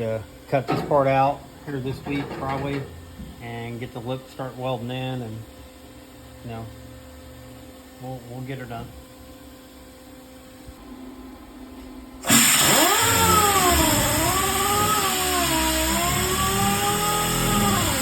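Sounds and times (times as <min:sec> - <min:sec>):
power sander on sheet metal: 0:12.3 - 0:18.0.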